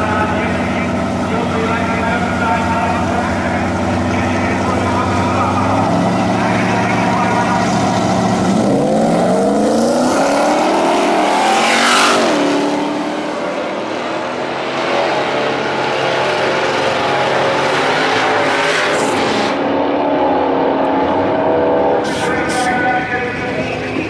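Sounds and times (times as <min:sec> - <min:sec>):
truck engine at high revs: 0:00.0 - 0:24.0.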